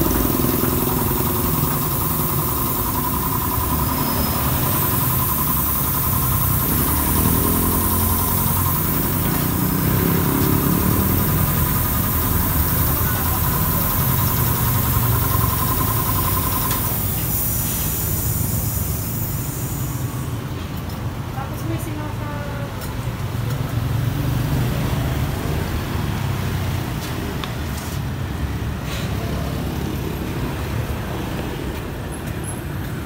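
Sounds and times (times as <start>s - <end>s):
steady high whine: 0.0s - 20.9s
vehicle engine idling: 0.0s - 22.4s.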